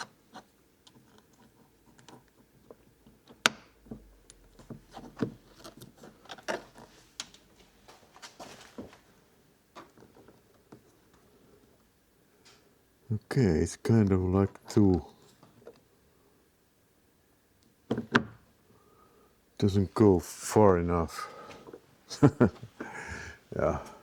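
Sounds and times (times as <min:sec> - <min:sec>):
lock parts clicking and tapping: 0:00.0 - 0:07.4.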